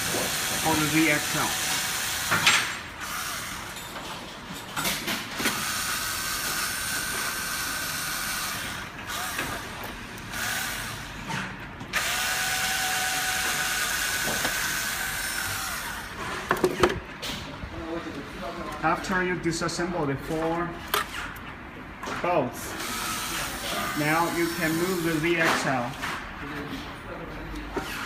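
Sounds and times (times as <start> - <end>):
electric screwdriver running: 0.0 - 3.7, 5.4 - 11.1, 11.9 - 16.2, 22.7 - 25.2.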